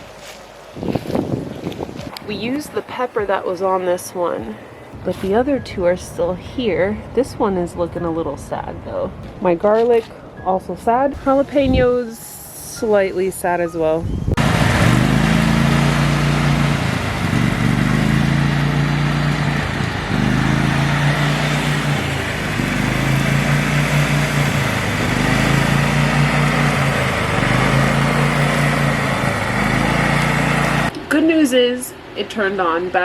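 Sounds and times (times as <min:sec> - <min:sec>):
lawn mower engine surging: 0:14.4 - 0:30.9.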